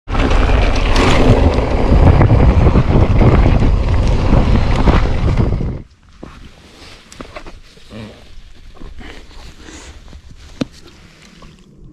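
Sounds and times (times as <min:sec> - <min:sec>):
wind buffeting microphone: 0:00.3 - 0:05.9.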